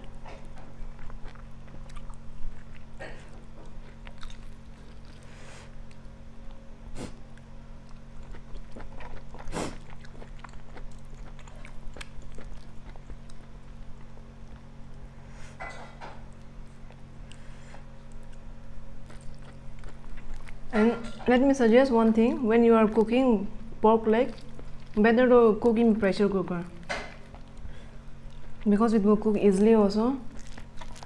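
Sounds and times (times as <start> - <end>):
person chewing meat: 0.0 - 15.2, 16.1 - 20.8, 24.3 - 25.0, 27.1 - 28.7, 30.3 - 31.0
steady low hum: 0.0 - 31.0.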